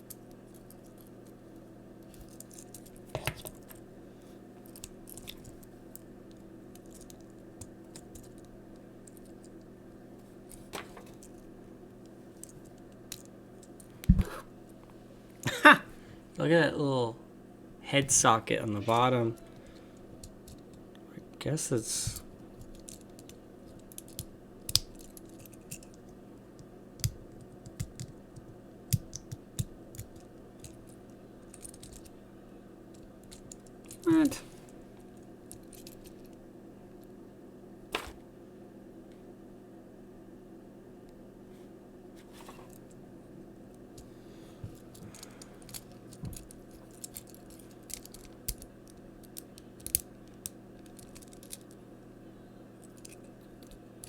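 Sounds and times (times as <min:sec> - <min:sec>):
plastic toy parts clicking: 0:45.2 - 0:48.7, 0:49.3 - 0:50.1, 0:50.8 - 0:51.8.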